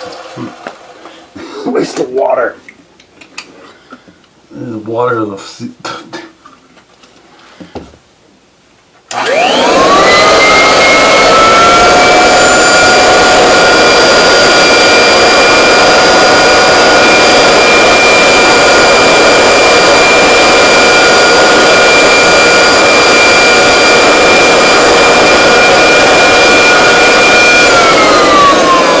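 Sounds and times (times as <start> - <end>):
vacuum cleaner motor whining: 0.0 - 1.3, 9.1 - 29.0.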